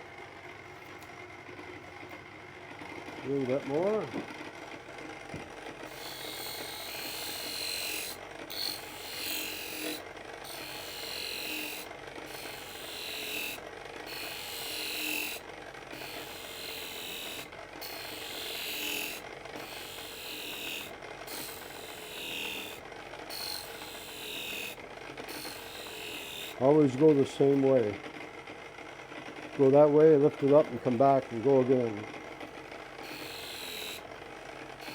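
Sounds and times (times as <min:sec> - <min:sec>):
electric motor running: 0:05.3 - 0:27.3, 0:32.3 - 0:34.9
knife hissing on honing wheel: 0:05.9 - 0:26.6, 0:33.0 - 0:34.0.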